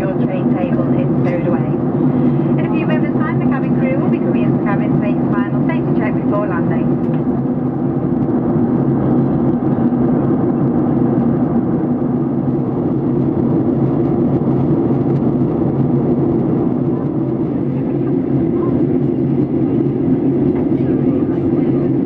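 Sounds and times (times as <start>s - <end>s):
airplane cabin drone: 0.0s - 22.0s.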